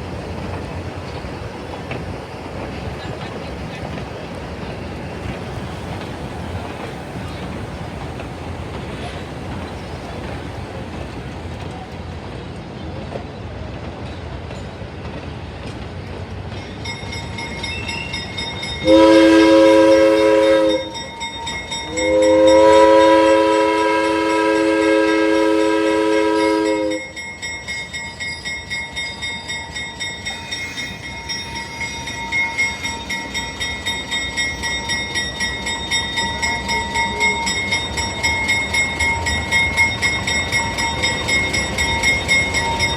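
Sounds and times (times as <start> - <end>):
train rumbling: 0.0 - 42.9
bell ringing: 16.6 - 42.9
locomotive whistle: 17.4 - 27.5, 29.1 - 42.9.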